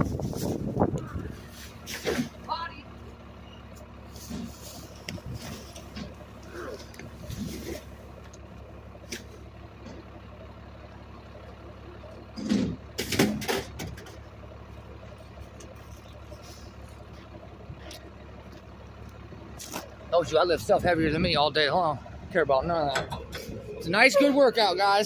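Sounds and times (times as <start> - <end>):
garbage truck engine running: 0.0 - 25.0
clatter of knocks and thumps: 12.4 - 14.2.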